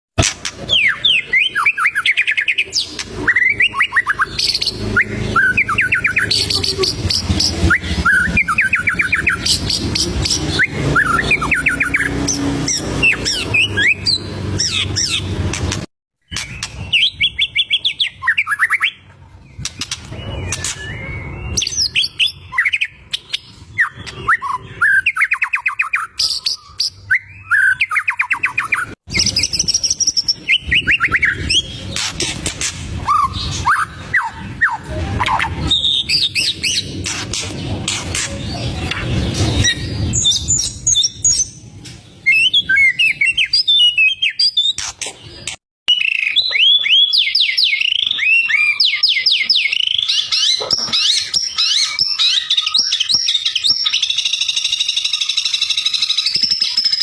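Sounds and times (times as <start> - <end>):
songbird singing whistled phrases: 0.7 - 15.2, 19.7 - 31.8, 42.2 - 57.0.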